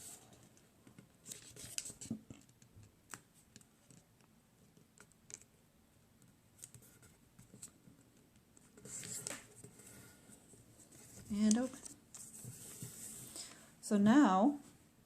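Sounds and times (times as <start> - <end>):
paper crackling and rustling: 1.2 - 3.7.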